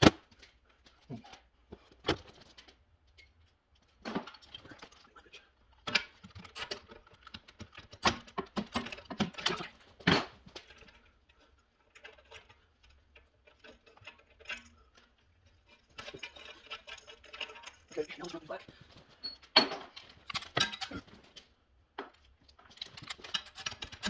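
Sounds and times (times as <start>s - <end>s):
clicks knocks and clinks: 11.9s - 24.0s.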